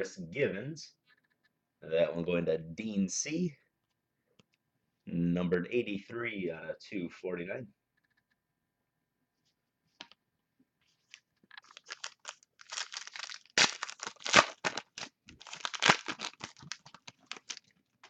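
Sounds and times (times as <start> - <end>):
wrapper tearing and crinkling: 11.5 - 17.7.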